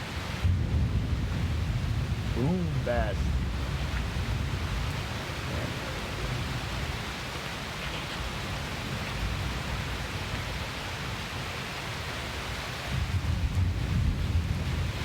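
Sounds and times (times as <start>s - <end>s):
heavy rain: 0.0s - 15.0s
thunder rumble: 0.4s - 10.0s, 12.9s - 15.0s.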